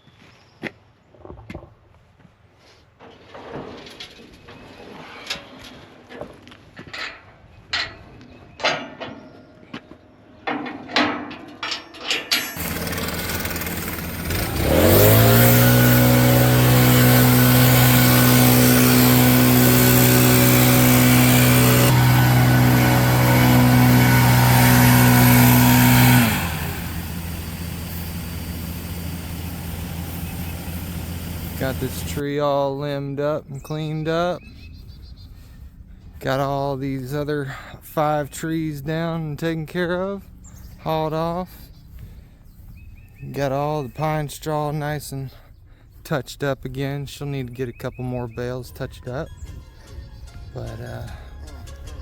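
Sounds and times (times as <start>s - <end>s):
engine revving: 12.6s - 32.2s.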